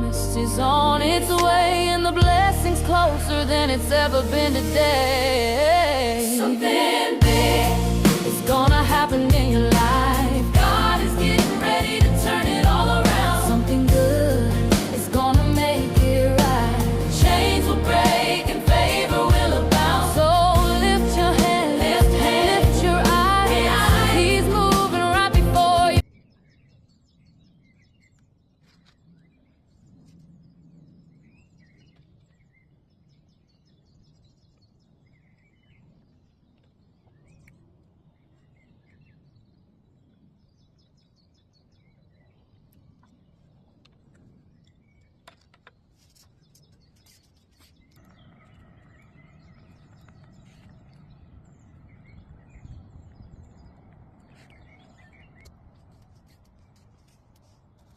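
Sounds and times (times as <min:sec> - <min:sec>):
low outdoor rumble: 0:00.0 - 0:06.2, 0:07.2 - 0:26.0
steady low hum: 0:00.0 - 0:26.0.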